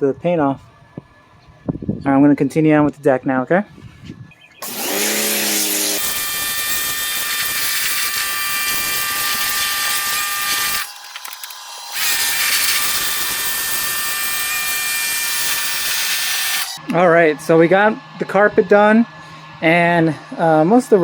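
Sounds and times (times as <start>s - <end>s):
pressure washer motor whine: 4.6s - 21.0s.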